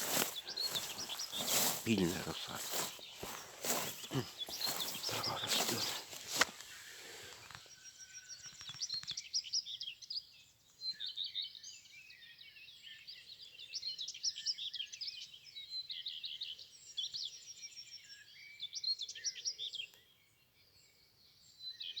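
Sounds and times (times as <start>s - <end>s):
soft rustles: 0.0s - 7.6s
songbirds chirping and trilling: 0.0s - 22.0s.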